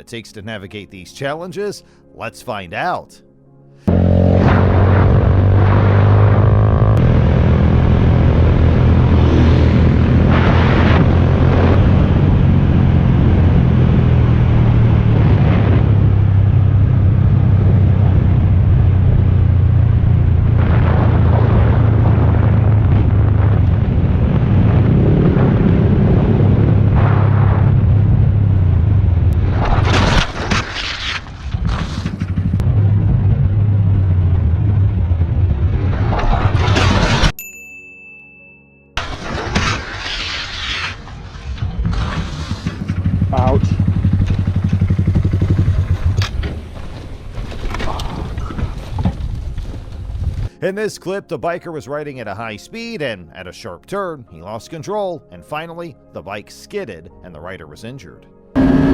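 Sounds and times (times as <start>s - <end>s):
motorcycle engine rumbling: 3.9s - 24.2s, 25.0s - 29.4s, 31.6s - 36.7s, 41.6s - 50.5s.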